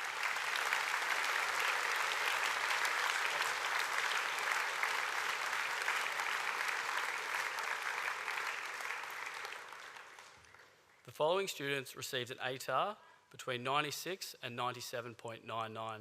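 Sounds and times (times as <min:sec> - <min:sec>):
audience clapping: 0:00.0 - 0:11.1.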